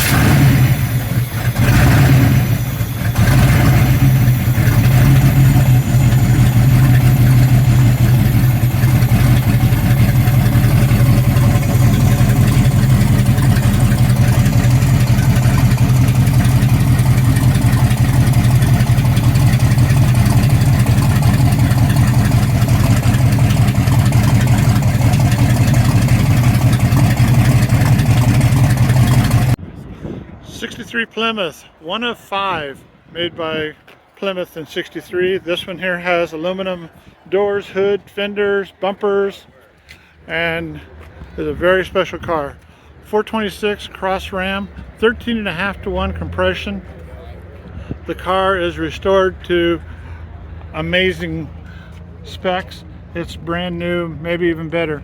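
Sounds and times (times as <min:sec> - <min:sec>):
car engine starting and revving: 0:00.0 - 0:29.6
engine idling loudly: 0:00.0 - 0:29.6.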